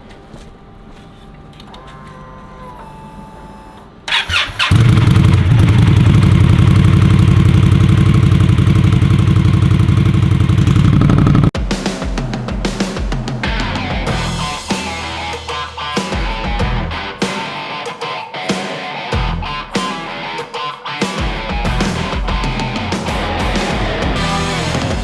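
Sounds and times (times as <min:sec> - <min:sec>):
engine starter cranking: 0:04.1 - 0:07.7
motorcycle engine idling: 0:04.1 - 0:11.5.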